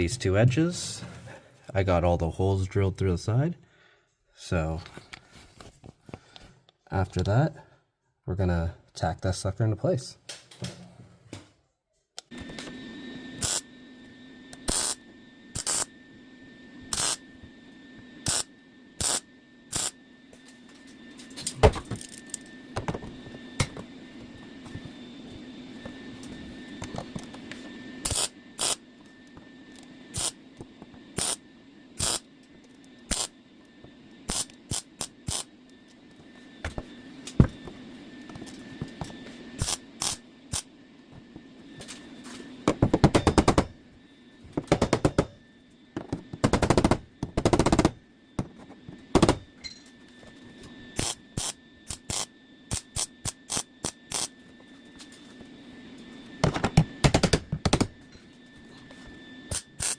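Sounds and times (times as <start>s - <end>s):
welder crackling bursts: 13.4s - 13.6s, 17.0s - 17.2s, 18.3s - 20.0s, 30.1s - 30.4s, 31.2s - 31.4s, 32.0s - 32.2s, 34.3s - 35.5s, 51.0s - 54.3s.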